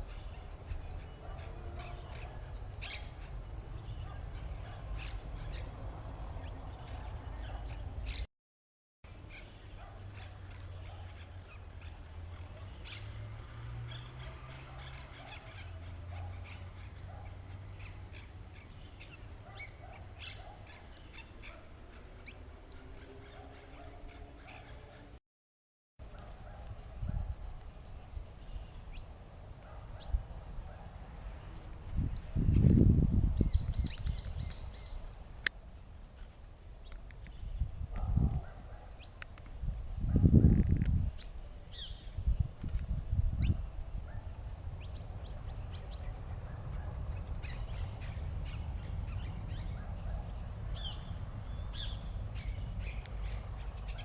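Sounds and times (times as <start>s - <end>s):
finches chirping: 31.2s - 35.2s.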